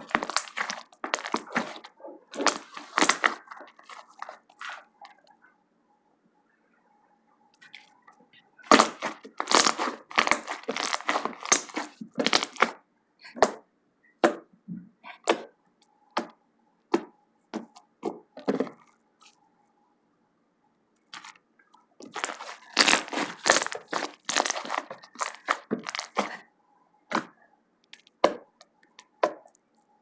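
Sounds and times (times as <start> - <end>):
slime crackling and popping: 0.0 - 4.4, 8.7 - 12.8, 22.0 - 26.4.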